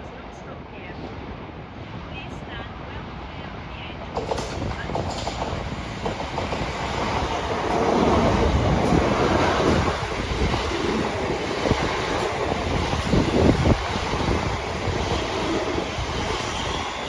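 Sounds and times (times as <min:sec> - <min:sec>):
train rumbling past: 0:03.2 - 0:17.0
wheel clicks over rail joints: 0:04.1 - 0:09.2.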